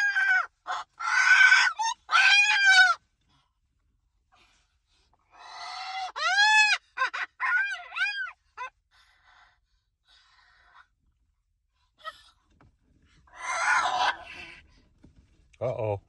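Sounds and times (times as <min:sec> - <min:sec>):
cockatoo screeching and calling: 0:00.0 - 0:03.0, 0:05.3 - 0:08.8, 0:13.3 - 0:14.7.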